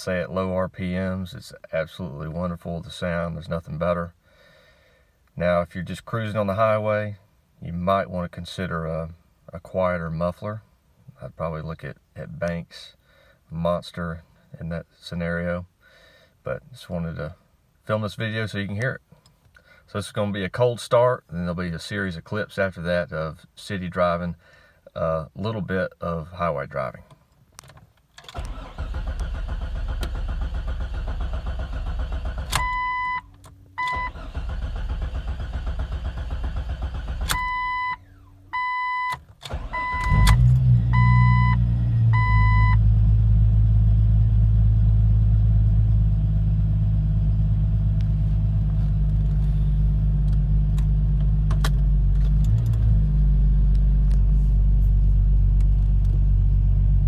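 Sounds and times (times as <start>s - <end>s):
car engine idling: 28.4s - 38.6s, 39.5s - 57.0s
dashboard warning chime beeping: 32.6s - 34.3s, 37.3s - 42.8s.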